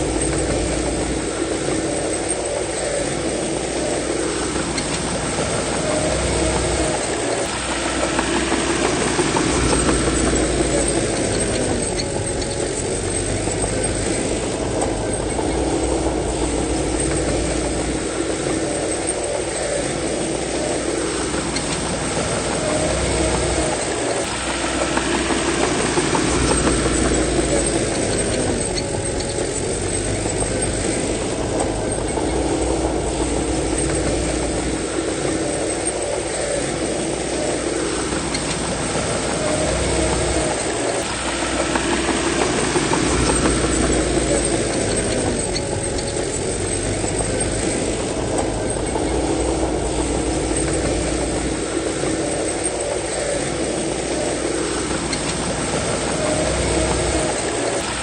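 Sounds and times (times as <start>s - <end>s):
bulldozer diesel engine under load: 0.0s - 58.0s.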